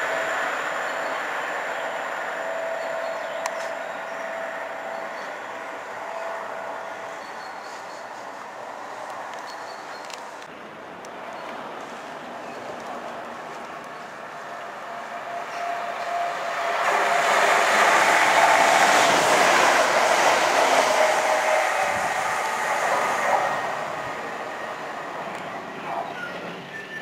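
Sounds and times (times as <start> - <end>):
passenger train passing: 0.0 - 27.0.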